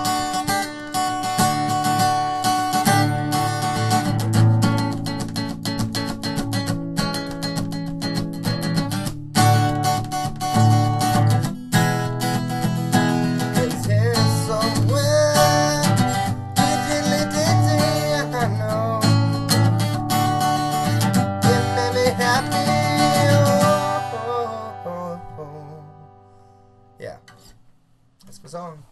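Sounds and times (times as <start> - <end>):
acoustic guitar strumming: 0.0 - 27.6.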